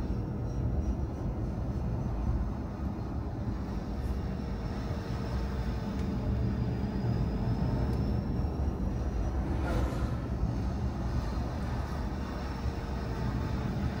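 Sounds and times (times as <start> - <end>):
car engine and tyre rumble: 0.0 - 14.0
faint thin whine: 0.0 - 14.0.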